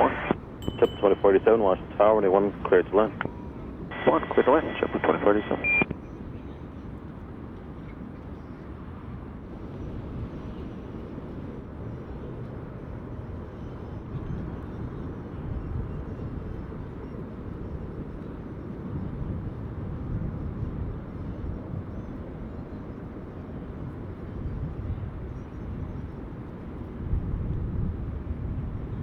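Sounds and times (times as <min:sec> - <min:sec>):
jet airliner engine rumble: 0:00.0 - 0:29.0.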